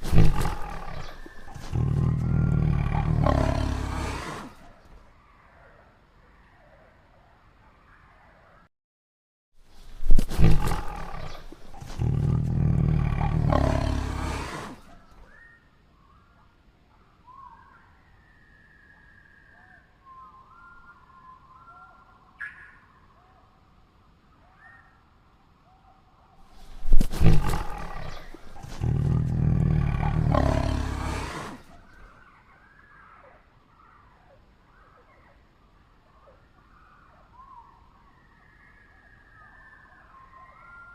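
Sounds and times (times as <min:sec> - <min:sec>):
tiger roaring: 0:00.0 - 0:04.7, 0:10.0 - 0:15.0, 0:26.6 - 0:32.0
tiger snarling: 0:00.0 - 0:04.8, 0:09.9 - 0:15.1, 0:26.6 - 0:32.0.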